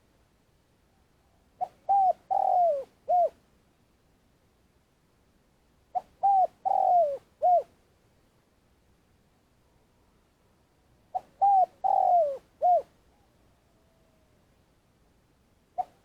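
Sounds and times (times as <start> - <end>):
dove cooing: 1.6 - 3.4, 5.9 - 7.7, 11.1 - 14.4, 15.8 - 16.0.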